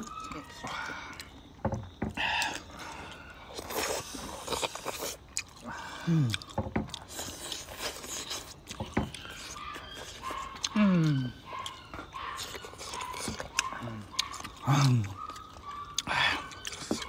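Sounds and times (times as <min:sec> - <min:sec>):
wet chewing and biting: 0:00.0 - 0:17.0
person humming: 0:10.8 - 0:11.4.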